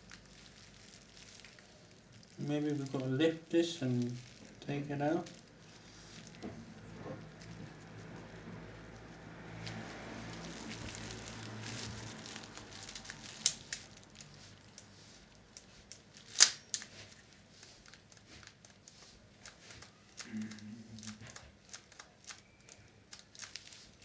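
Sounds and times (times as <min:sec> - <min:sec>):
rustling and scraping: 0:00.0 - 0:24.0
sharp clicks of small parts: 0:16.2 - 0:16.9.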